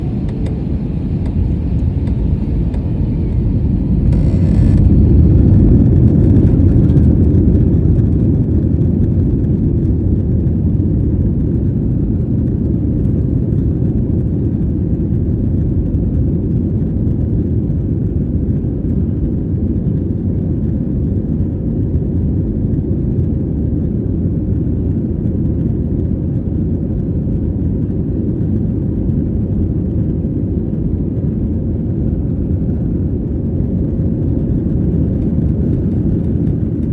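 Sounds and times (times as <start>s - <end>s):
jet engines rumbling: 0.0s - 8.8s, 32.3s - 36.9s.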